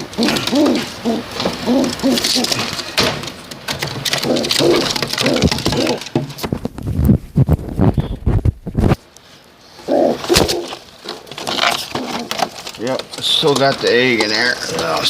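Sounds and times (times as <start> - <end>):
pigeons cooing: 0.0 - 6.2, 9.6 - 12.7
low thumps: 4.2 - 9.0.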